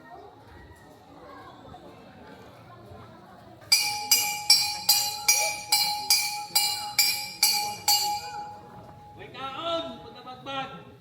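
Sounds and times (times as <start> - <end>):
bright metallic strikes: 3.7 - 9.3
steady held tone: 3.7 - 10.0.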